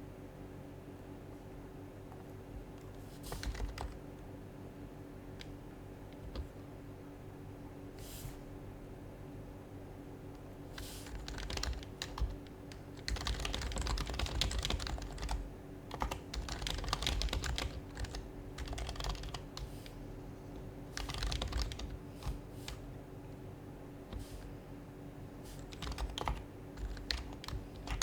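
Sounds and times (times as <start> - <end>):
keyboard keys clacking: 11.1 - 12.4, 13.0 - 19.6, 20.5 - 22.4, 25.7 - 28.0.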